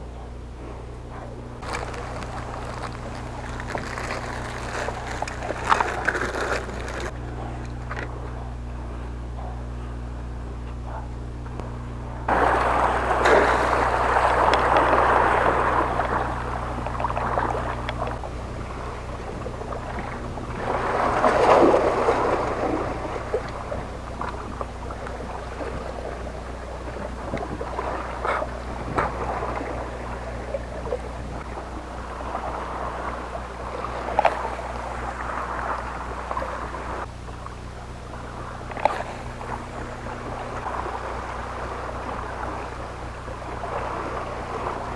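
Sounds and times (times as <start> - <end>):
boat engine humming: 0.0 - 44.9
sea water washing against hull: 0.6 - 9.6, 11.6 - 44.9.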